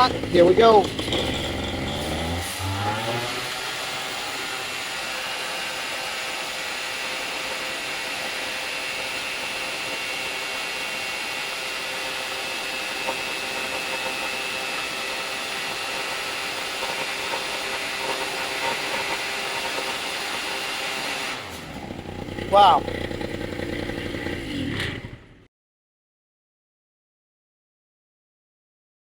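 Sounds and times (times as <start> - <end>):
propeller rushing hiss: 0.0 - 8.2
paramotor engine revving: 0.0 - 25.5.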